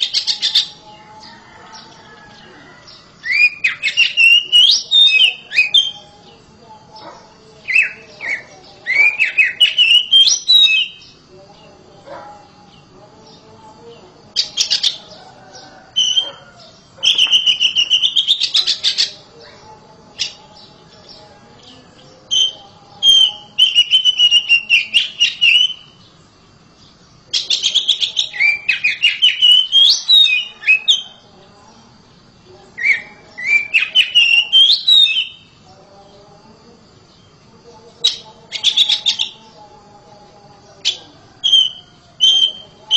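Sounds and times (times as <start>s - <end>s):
bird singing whistled phrases: 3.2s - 6.0s, 7.7s - 11.1s, 17.0s - 19.1s, 22.3s - 26.0s, 27.4s - 31.1s, 32.8s - 35.5s, 41.4s - 42.8s.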